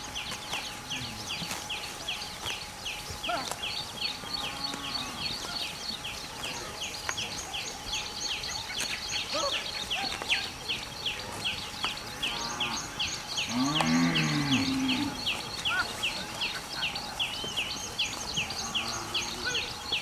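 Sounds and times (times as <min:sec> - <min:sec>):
cow mooing: 0:13.5 - 0:15.2.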